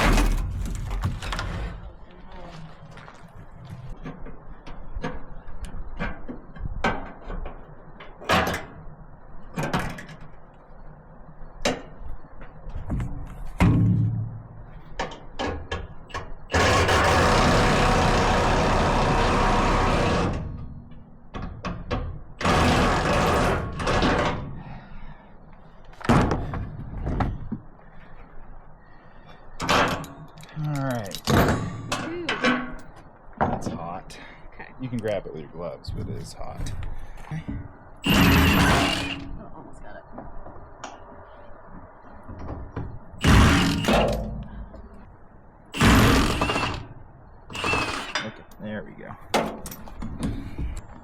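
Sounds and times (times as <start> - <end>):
knocks and clanks of work: 0.0 - 2.0, 11.6 - 24.6, 26.0 - 27.6, 29.6 - 33.9, 35.9 - 39.4, 42.2 - 45.0, 45.8 - 48.6, 49.3 - 51.0
loud power tool running: 16.5 - 20.4, 22.4 - 23.8, 38.0 - 39.3, 43.2 - 44.1, 45.8 - 46.9, 47.5 - 48.2.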